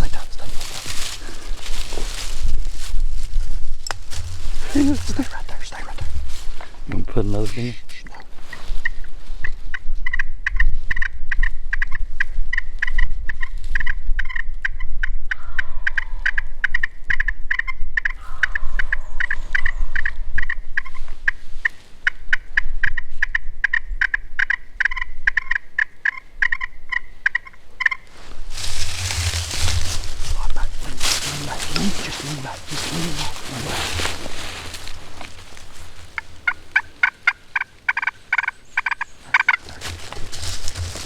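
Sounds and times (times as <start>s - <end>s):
wild turkeys gobbling and clucking: 3.9s - 7.0s, 7.6s - 41.0s.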